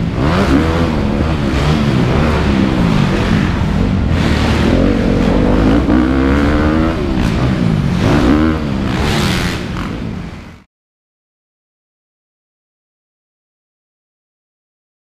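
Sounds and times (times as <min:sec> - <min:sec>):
dirt bike engines revving: 0:00.0 - 0:10.7.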